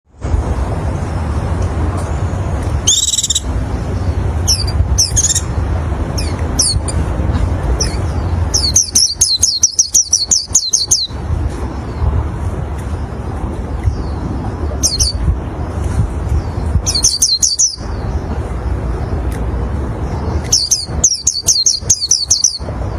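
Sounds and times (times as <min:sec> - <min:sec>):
white-eye bird singing: 0:02.7 - 0:07.1, 0:07.8 - 0:12.0, 0:13.0 - 0:15.4, 0:16.3 - 0:19.2, 0:20.0 - 0:22.9.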